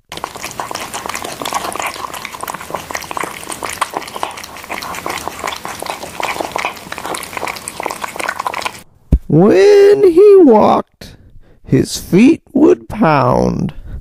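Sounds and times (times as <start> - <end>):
cat chewing and smacking: 0.0 - 8.8.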